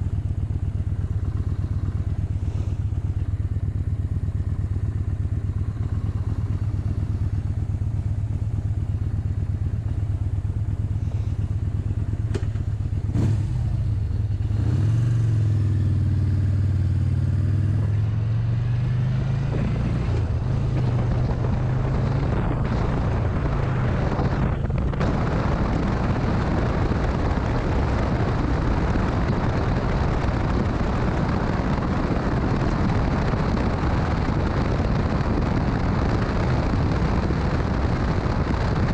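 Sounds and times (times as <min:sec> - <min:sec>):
motorcycle engine revving: 0:11.0 - 0:38.9
wind rush: 0:19.1 - 0:38.9.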